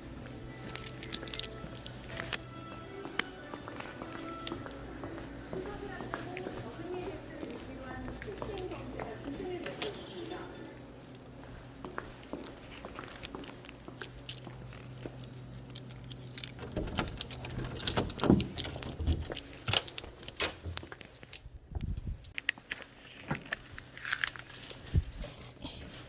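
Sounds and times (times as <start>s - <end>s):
steady low hum: 0.0s - 26.0s
small objects clicking and rattling: 22.3s - 24.8s.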